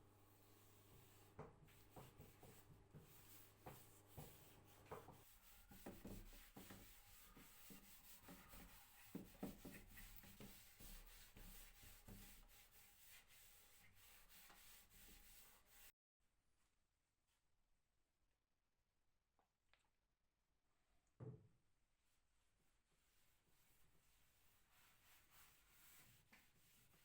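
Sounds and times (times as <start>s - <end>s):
rubbing and scraping on wood: 1.0s - 15.9s, 23.2s - 27.0s.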